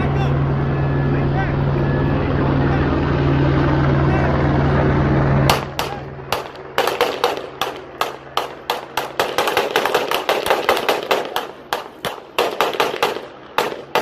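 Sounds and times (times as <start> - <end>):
rapid gunshots with echo: 5.5 - 14.0.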